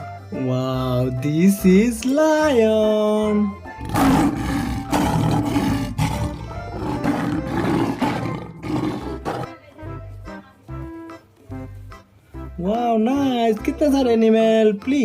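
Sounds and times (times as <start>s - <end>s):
background music: 0.0s - 15.0s
lion roar: 3.8s - 9.5s.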